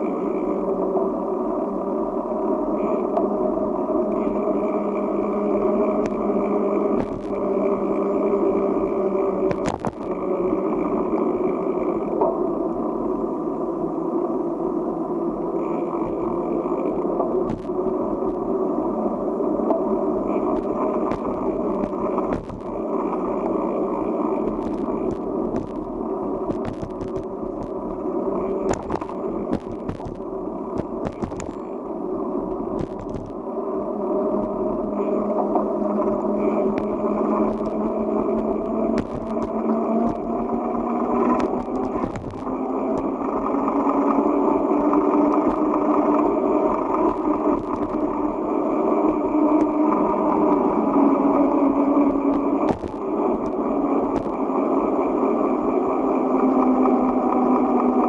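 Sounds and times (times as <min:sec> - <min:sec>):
bicycle tyre rumble: 0:00.0 - 0:58.0
rising whine: 0:00.0 - 0:58.0
knocks and rattles: 0:22.3 - 0:22.7, 0:26.5 - 0:27.7, 0:28.6 - 0:31.6, 0:32.8 - 0:33.4, 0:37.5 - 0:40.2, 0:41.4 - 0:43.0.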